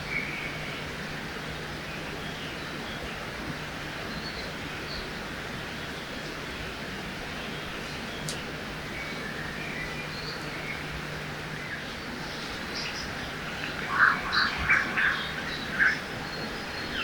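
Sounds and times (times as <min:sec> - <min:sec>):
flowing river water: 0:00.0 - 0:17.0
loud repeated bird calls: 0:11.7 - 0:17.0.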